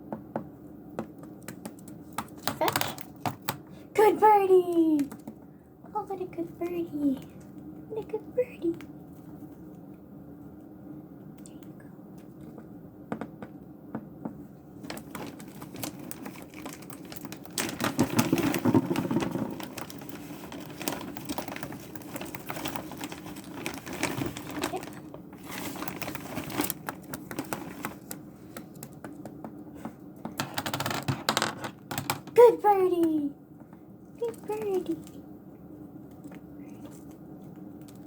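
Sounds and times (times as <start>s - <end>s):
rustling: 14.8s - 28.2s.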